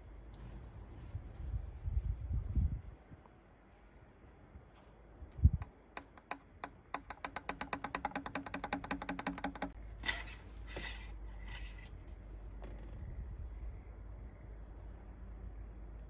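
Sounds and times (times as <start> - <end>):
fast mechanical clicks: 6.0 - 9.8.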